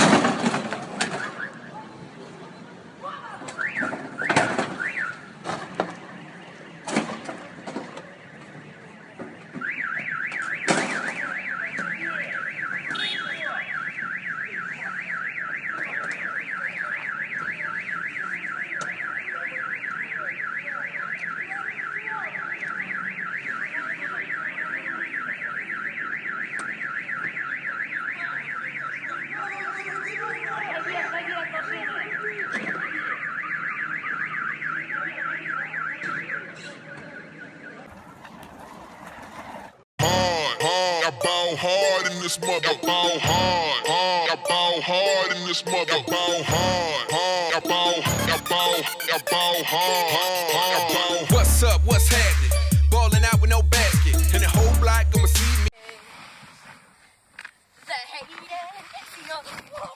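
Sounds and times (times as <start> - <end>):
car alarm siren warbling: 9.5 - 55.8.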